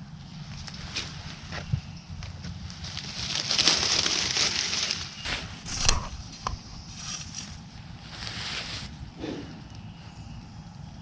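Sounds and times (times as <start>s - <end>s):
rustle in leaf litter: 2.5s - 9.0s.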